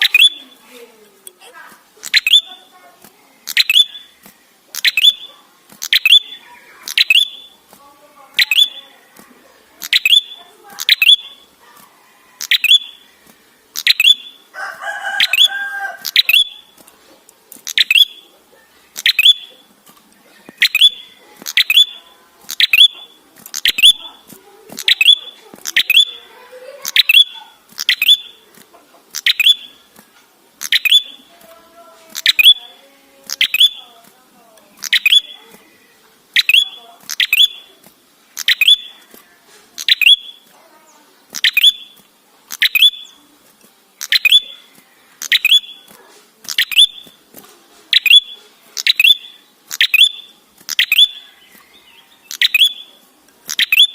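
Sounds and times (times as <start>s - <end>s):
bird calling sharp high notes: 0.0s - 0.6s, 2.0s - 2.7s, 3.4s - 4.2s, 4.8s - 7.6s, 8.3s - 9.0s, 9.8s - 11.6s, 12.4s - 13.1s, 13.8s - 16.8s, 17.6s - 18.3s, 19.0s - 19.7s, 20.5s - 28.4s, 29.1s - 29.9s, 30.6s - 31.3s, 32.1s - 33.9s, 34.8s - 35.6s, 36.3s - 37.8s, 38.4s - 39.1s, 39.8s - 40.5s, 41.3s - 43.2s, 44.0s - 45.9s, 46.5s - 47.2s, 47.9s - 53.9s
harsh drawn-out bird call: 0.0s - 0.6s, 2.0s - 2.7s, 3.4s - 4.2s, 4.8s - 7.6s, 8.3s - 9.0s, 9.8s - 11.6s, 13.8s - 16.8s, 20.5s - 28.4s, 30.6s - 31.3s, 32.1s - 33.8s, 34.7s - 37.8s, 38.4s - 39.0s, 39.8s - 40.5s, 41.3s - 43.2s, 44.0s - 45.9s, 47.9s - 53.9s.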